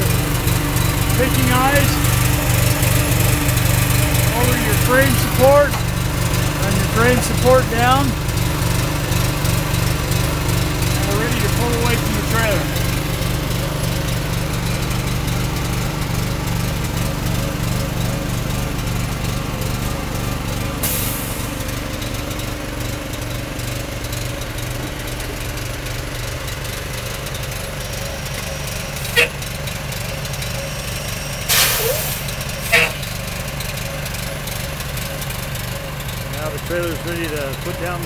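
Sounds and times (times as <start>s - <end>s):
engine running steadily: 0.0s - 38.0s
sharp squeak: 30.7s - 33.0s.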